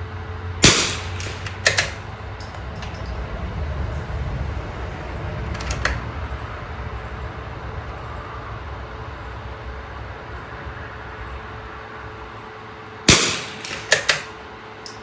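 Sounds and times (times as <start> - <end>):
steady low rumble: 0.0 - 15.0
rifle shot crack: 0.6 - 2.9, 13.1 - 14.4.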